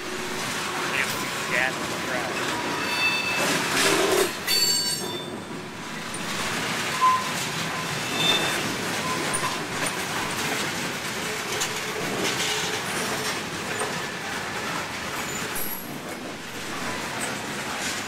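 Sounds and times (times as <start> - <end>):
train wheels rumbling on rails: 0.0 - 18.0
high-pitched wheel squeals: 2.7 - 5.5, 6.9 - 9.6.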